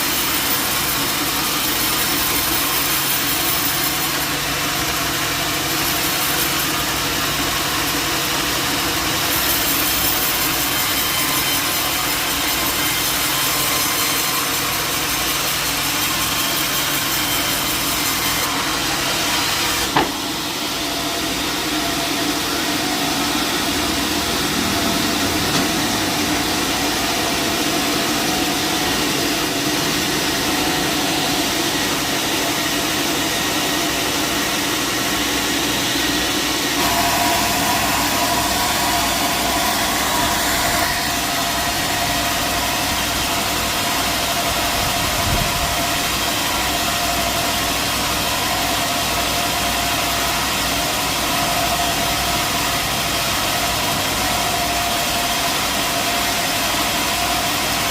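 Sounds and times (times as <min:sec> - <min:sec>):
sawmill machinery running: 0:00.0 - 0:57.9
steady higher hum: 0:18.5 - 0:45.8.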